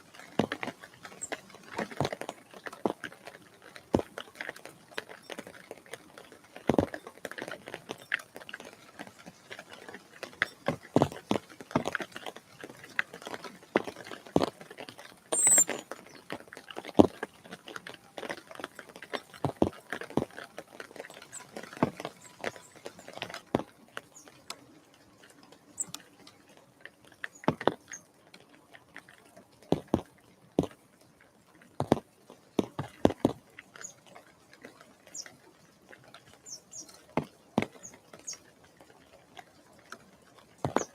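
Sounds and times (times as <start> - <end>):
high bird chirps: 15.4 - 15.8, 25.8 - 26.0.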